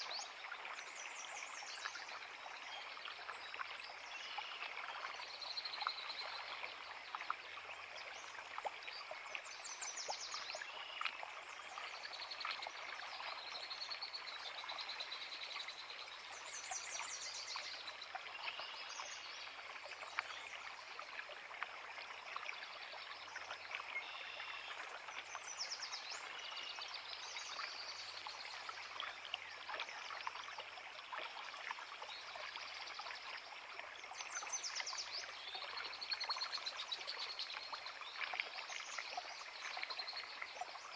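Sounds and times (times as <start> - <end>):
creek water babbling: 0.0 - 40.9.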